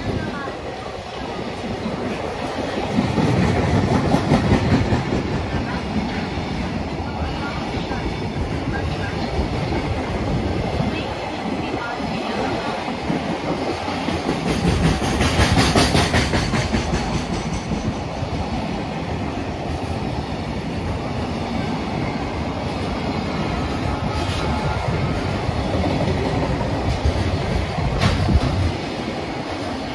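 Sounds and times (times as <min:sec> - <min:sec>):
train wheels rumbling on rail: 0:00.0 - 0:29.9
wheels clacking over rail joints: 0:13.0 - 0:18.3.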